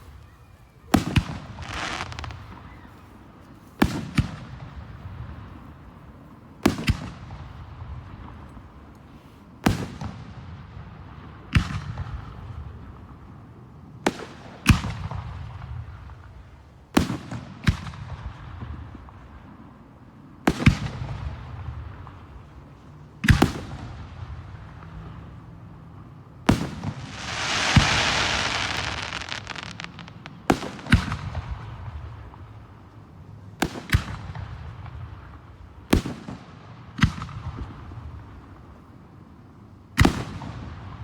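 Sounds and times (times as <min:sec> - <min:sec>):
fireworks bursting with booms: 0:00.9 - 0:02.9, 0:26.4 - 0:32.8, 0:40.0 - 0:41.0
hissing crackling firework burst: 0:01.0 - 0:02.8, 0:26.5 - 0:31.8.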